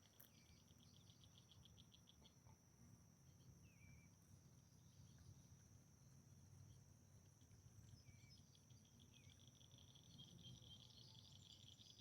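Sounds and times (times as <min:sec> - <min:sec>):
short insect chirp: 0:00.0 - 0:02.4, 0:06.6 - 0:12.0
insects droning: 0:00.0 - 0:12.0.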